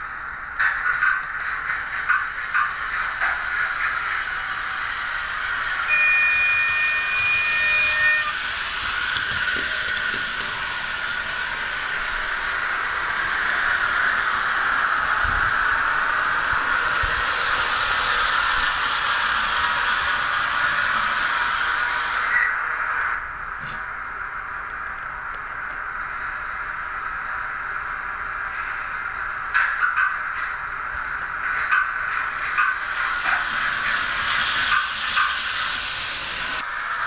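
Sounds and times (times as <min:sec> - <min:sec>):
model train whirring: 0:00.0 - 0:37.0
two-tone train whistle: 0:05.7 - 0:09.9.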